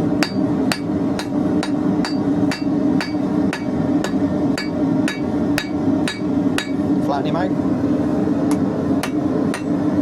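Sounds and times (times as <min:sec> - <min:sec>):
steady low hum: 0:00.0 - 0:10.0
hammer striking steel bar: 0:00.2 - 0:06.8, 0:09.0 - 0:09.7.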